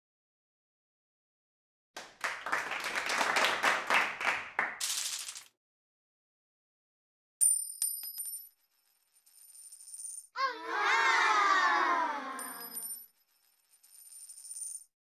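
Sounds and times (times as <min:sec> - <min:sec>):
crowd clapping: 0:02.0 - 0:04.9.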